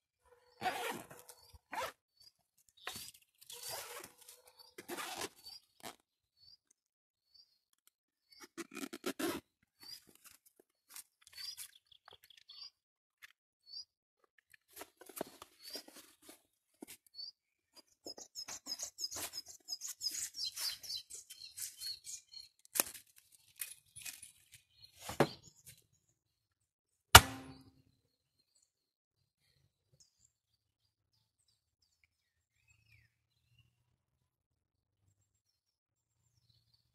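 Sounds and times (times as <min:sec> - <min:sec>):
bird chirping: 0:11.2 - 0:12.8, 0:17.1 - 0:22.6
crinkling handling noises: 0:14.5 - 0:17.1, 0:22.6 - 0:25.3
sharp ringing knocks: 0:27.2 - 0:27.7.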